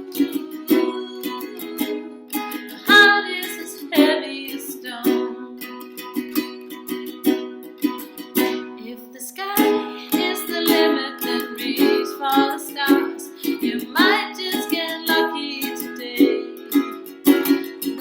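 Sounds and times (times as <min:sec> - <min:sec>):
woman singing wordlessly: 0:00.0 - 0:05.9, 0:08.8 - 0:17.2
plucked string instrument strumming: 0:00.0 - 0:18.0.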